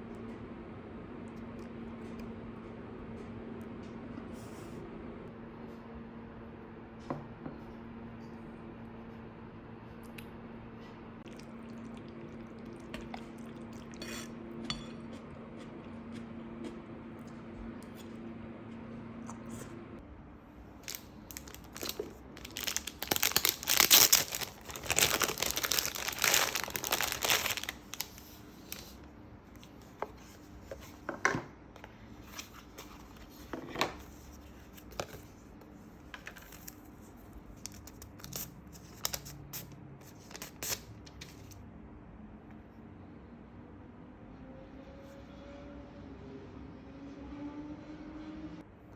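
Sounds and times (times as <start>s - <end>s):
paper and plastic crinkling: 20.8s - 29.0s, 36.2s - 41.6s.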